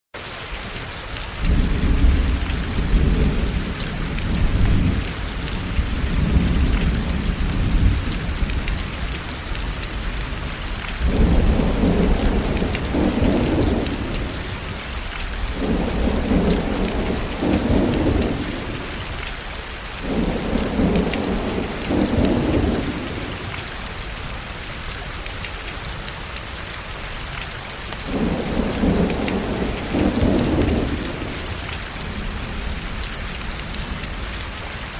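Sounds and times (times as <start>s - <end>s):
heavy rain: 0.2s - 34.9s
thunder rumbling: 1.4s - 19.3s, 20.0s - 23.6s, 28.0s - 34.2s.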